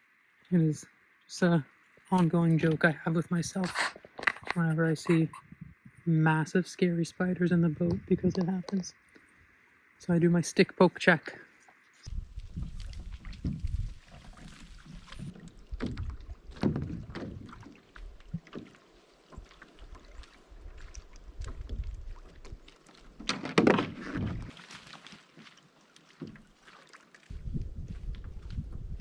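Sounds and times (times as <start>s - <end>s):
stick scraping canoe hull: 2.1s - 5.4s, 22.9s - 25.5s
hollow knocks on canoe: 15.8s - 17.7s, 23.2s - 24.5s.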